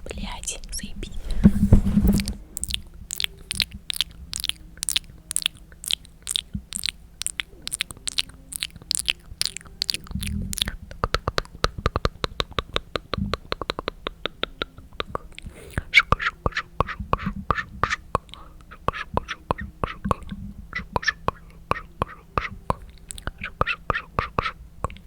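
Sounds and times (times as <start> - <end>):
tongue clicks: 2.2 - 25.0.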